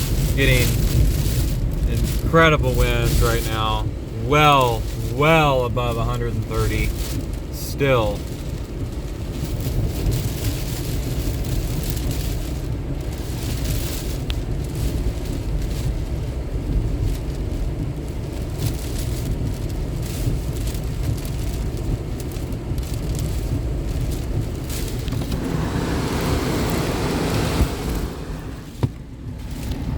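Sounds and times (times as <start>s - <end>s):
driving rain: 0.0s - 29.9s
strong wind buffeting microphone: 8.2s - 29.9s.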